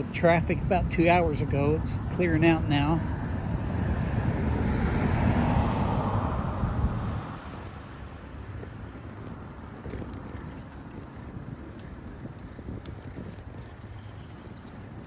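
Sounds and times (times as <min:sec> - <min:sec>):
traffic noise: 0:00.0 - 0:15.0
wind rushing: 0:03.0 - 0:07.6.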